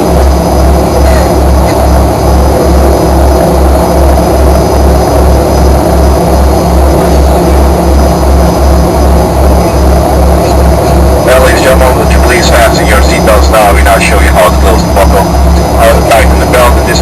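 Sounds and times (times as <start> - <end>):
aircraft cabin engine rumble: 0.0 - 17.0.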